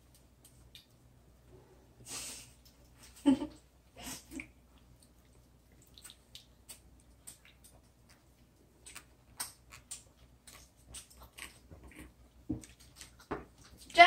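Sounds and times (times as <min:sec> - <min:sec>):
person chewing: 0:04.3 - 0:14.0.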